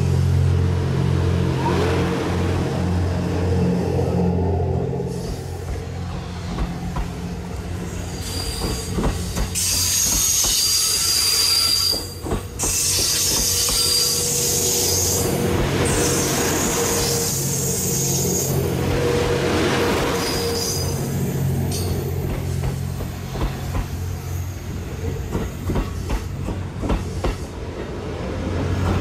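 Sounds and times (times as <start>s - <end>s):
high-pitched wheel squeal: 8.1s - 18.6s.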